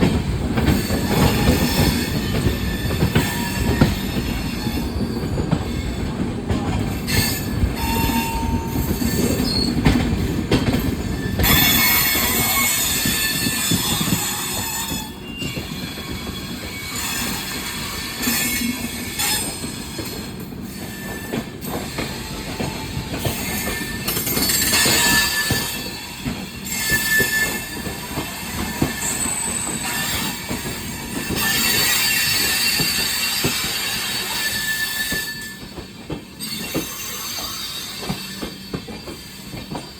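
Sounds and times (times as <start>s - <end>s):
high wheel squeals: 7.1s - 9.8s, 20.7s - 39.9s.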